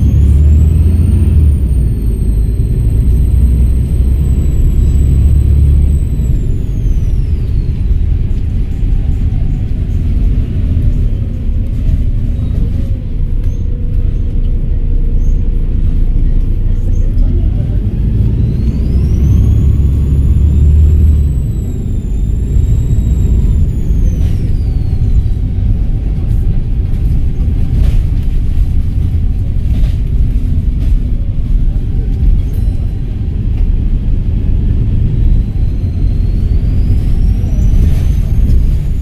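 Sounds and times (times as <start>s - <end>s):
turbocharger whistle: 0.0s - 8.1s, 18.0s - 25.6s, 35.0s - 39.0s
bus diesel engine rumble: 0.0s - 39.0s.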